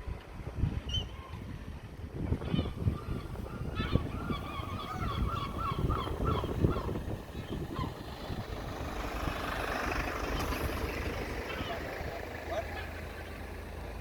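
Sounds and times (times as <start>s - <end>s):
wind rumble on microphone: 0.0s - 14.0s
gull calling: 2.5s - 8.1s.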